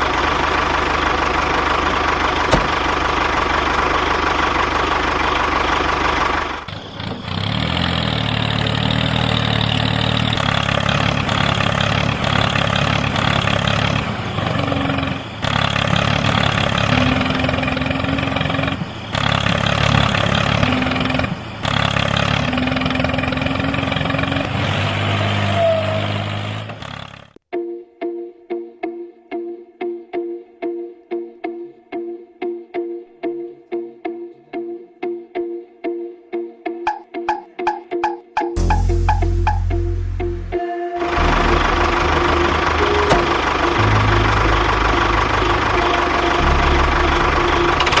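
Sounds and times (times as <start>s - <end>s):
tractor engine idling: 0.0s - 24.7s, 25.3s - 27.4s, 38.6s - 48.0s
high-pitched mechanical noise: 38.6s - 48.0s.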